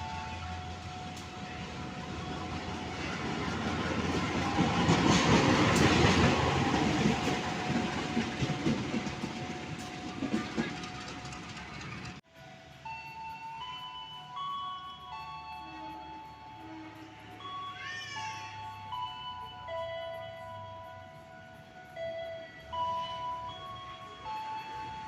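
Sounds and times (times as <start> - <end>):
wheels clacking over rail joints: 0.0 - 12.2
train rumbling past: 0.0 - 13.0.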